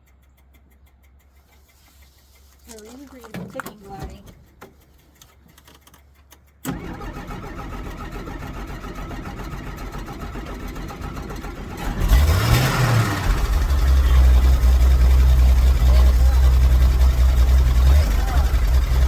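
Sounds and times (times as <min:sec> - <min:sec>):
faint ticks: 0:00.0 - 0:06.7
starter cranking engine: 0:00.0 - 0:19.0
car engine revving and running: 0:06.6 - 0:19.0.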